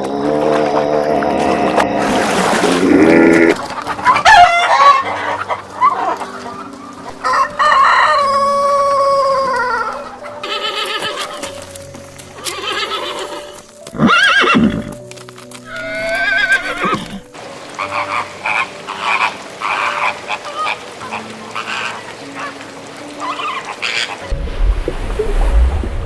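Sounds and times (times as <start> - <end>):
horse whinnying: 9.2 - 11.7, 12.4 - 15.1, 15.7 - 17.3.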